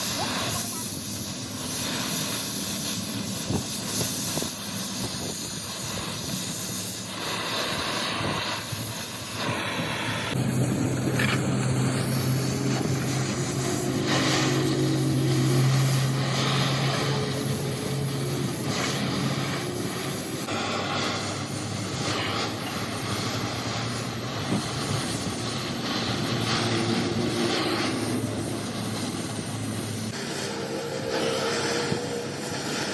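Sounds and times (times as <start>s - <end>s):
workshop machinery din: 6.8s - 32.9s
low machine hum: 9.9s - 20.7s, 23.2s - 32.9s.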